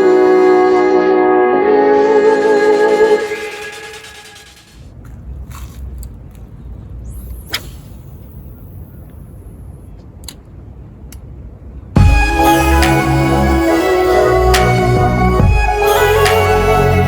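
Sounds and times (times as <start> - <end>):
loud music: 0.0 - 4.8, 12.0 - 17.0.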